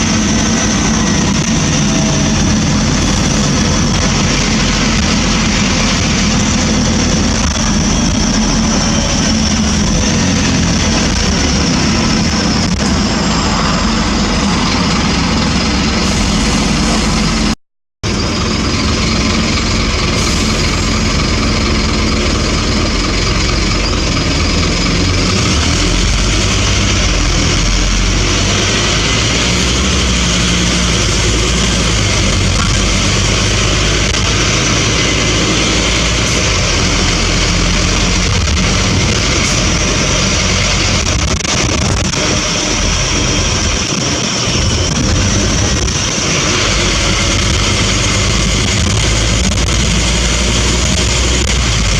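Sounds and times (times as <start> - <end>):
bus engine running: 0.0 - 51.9.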